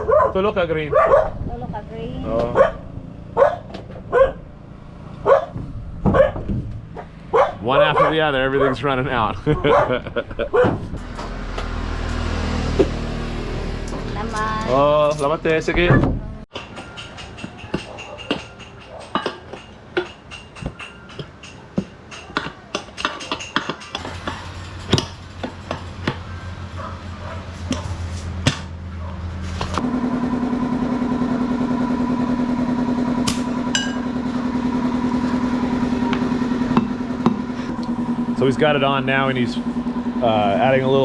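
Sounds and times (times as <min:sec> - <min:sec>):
metal knocks and clicks: 0:13.8 - 0:26.4
small motor running: 0:29.5 - 0:41.0.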